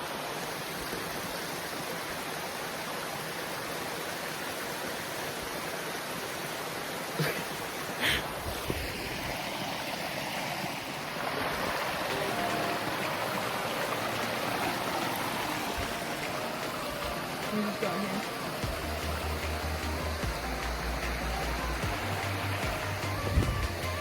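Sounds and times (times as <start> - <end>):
creek water rushing: 0.0 - 24.0.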